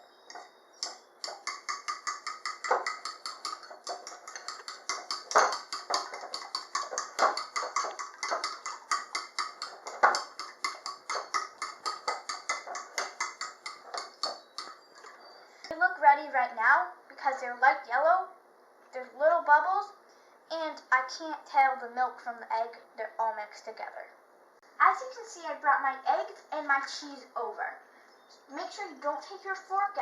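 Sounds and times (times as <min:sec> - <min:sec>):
fork whisking eggs in bowl: 0:00.3 - 0:14.9.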